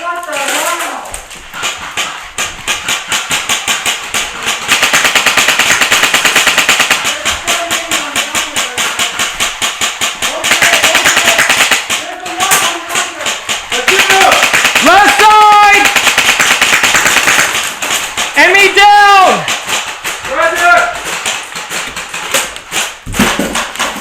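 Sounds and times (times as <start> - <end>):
airsoft rifle firing full-auto: 2.6 - 7.7, 8.3 - 18.8.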